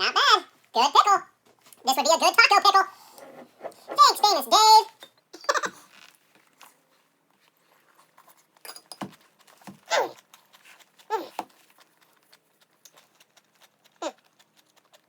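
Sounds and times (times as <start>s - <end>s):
sped-up high-pitched vocal sounds: 2.0s - 4.8s.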